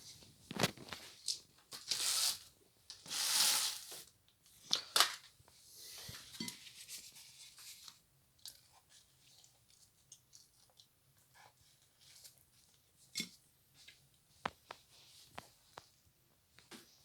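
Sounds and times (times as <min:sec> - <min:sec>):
packaging rustling and tearing: 0:00.5 - 0:02.5.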